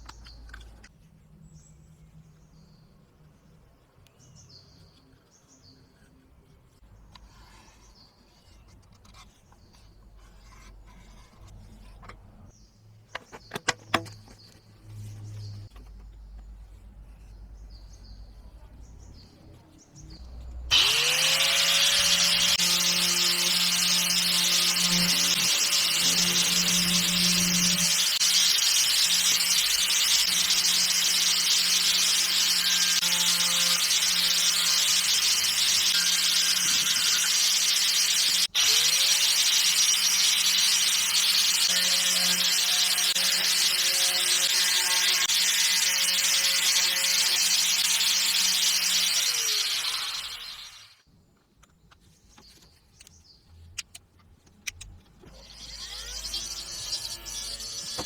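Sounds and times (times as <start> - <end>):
power tool grinding hiss: 20.7 - 51.0, 55.3 - 58.0.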